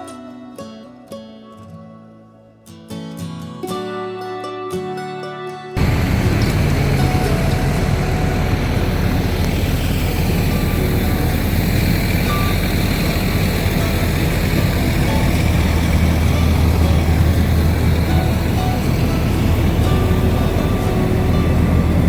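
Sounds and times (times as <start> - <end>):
vehicle rumble and road noise: 5.8 - 22.0.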